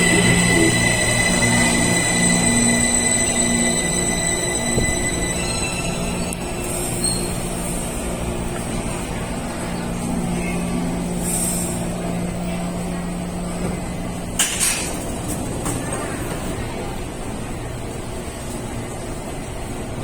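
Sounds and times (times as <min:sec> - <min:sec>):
train traction equipment humming: 0:00.0 - 0:20.0
air brake hisses: 0:11.2 - 0:11.8.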